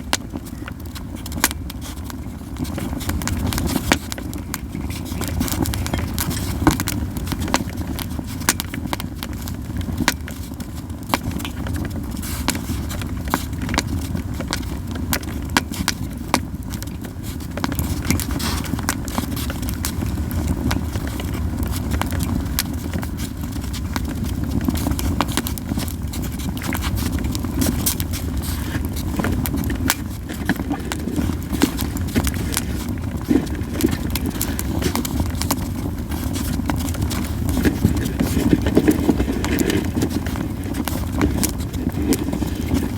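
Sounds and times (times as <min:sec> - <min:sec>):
logs crackling and popping: 0:00.0 - 0:42.9
low steady rumble: 0:11.0 - 0:42.9.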